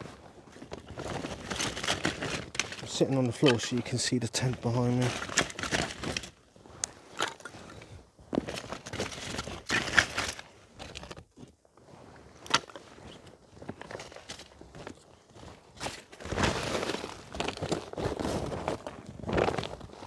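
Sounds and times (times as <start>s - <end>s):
paper and wood rustling: 0.1s - 6.4s.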